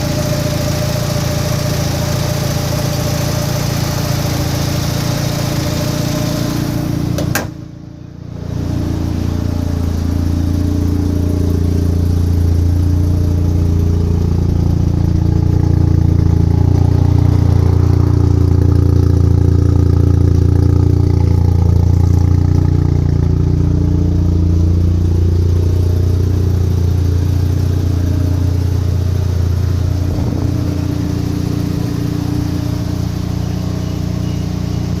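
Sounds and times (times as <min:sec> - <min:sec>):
rotary engine idling: 0:08.9 - 0:35.0.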